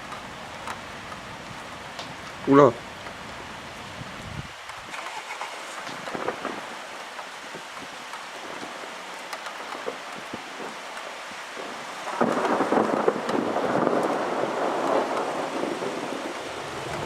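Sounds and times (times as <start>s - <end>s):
rain falling: 0.0s - 17.0s
rumble of thunder: 5.9s - 6.7s, 11.6s - 17.0s.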